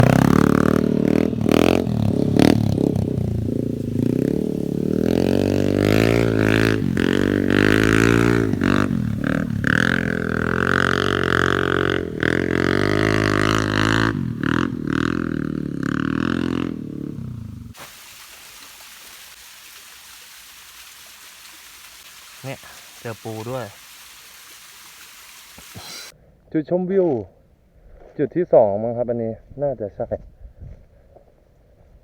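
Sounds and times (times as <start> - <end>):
scooter engine running: 0.0 - 17.8.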